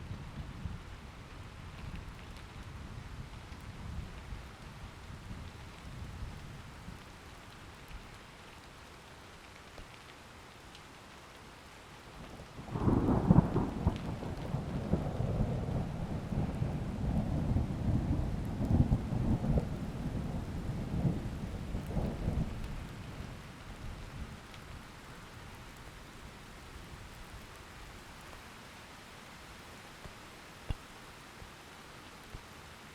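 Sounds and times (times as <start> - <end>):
rain hiss: 0.0 - 32.9
thunder clap and rumble: 12.7 - 23.4.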